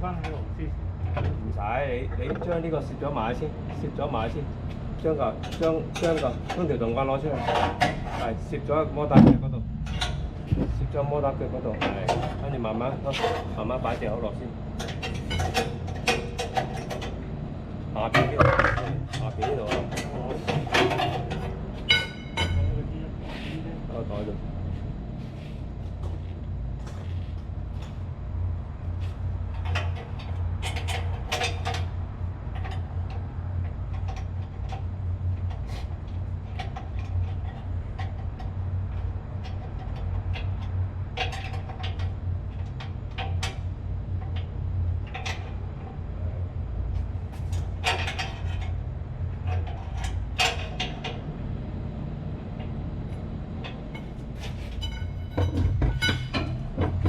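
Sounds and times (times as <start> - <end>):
low machinery hum: 0.0 - 57.0
metal clanks and taps: 2.1 - 2.6, 5.4 - 8.3, 9.2 - 10.8, 11.7 - 12.5, 14.8 - 17.2, 18.0 - 22.8, 29.0 - 31.9, 32.5 - 46.0, 46.9 - 51.2, 52.6 - 57.0.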